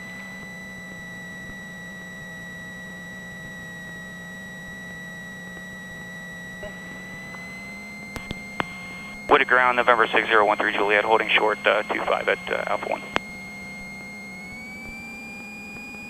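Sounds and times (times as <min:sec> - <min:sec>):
low steady hum: 0:06.6 - 0:13.2.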